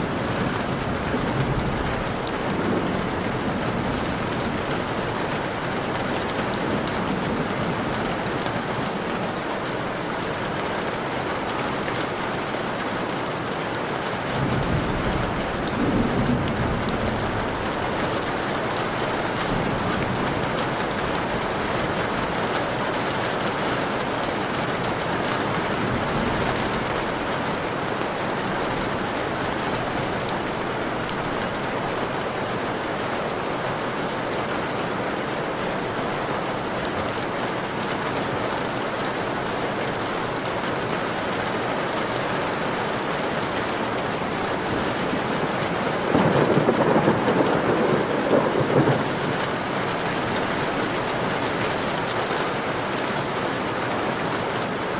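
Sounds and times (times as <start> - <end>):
rain on a window pane: 0.0 - 54.9
thunder roll: 46.0 - 49.4.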